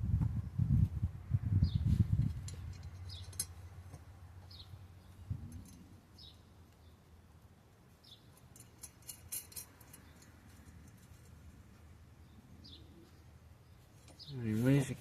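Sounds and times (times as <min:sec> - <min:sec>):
metal bolts and nuts clicking: 0:02.4 - 0:04.0, 0:05.5 - 0:05.9, 0:08.3 - 0:11.4.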